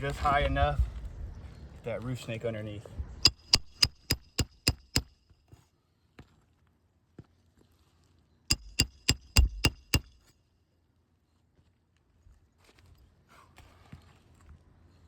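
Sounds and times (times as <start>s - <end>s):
hammer striking metal: 3.2s - 5.1s, 8.5s - 10.3s
light hammer taps: 3.2s - 5.1s, 8.5s - 10.2s.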